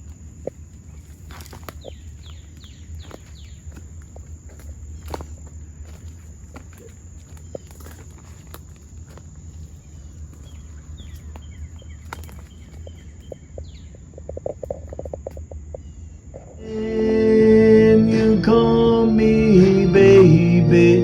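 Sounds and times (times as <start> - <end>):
low rumble: 16.5 - 21.0.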